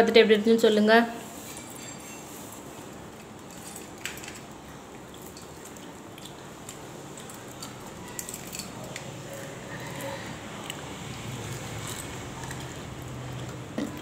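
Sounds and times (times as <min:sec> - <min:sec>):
room noise: 0:00.0 - 0:14.0
child chewing crunchy food: 0:04.7 - 0:14.0.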